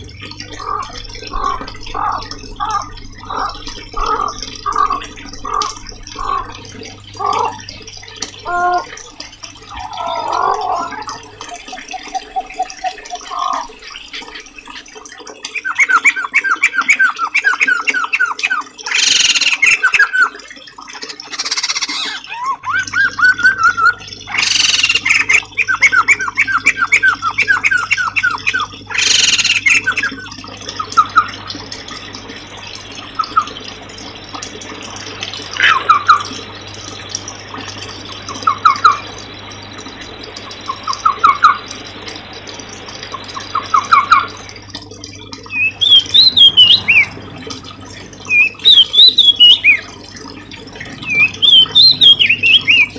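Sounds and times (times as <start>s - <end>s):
bird harsh squawks: 18.9s - 19.8s, 21.1s - 23.6s, 24.3s - 26.8s, 28.4s - 30.0s
songbirds chirping: 45.4s - 52.9s.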